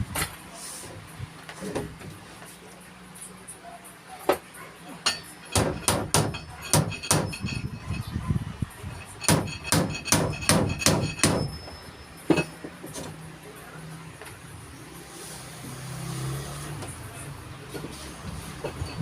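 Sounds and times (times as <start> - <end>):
hammer driving nails into wood: 5.5 - 7.3, 9.2 - 11.5.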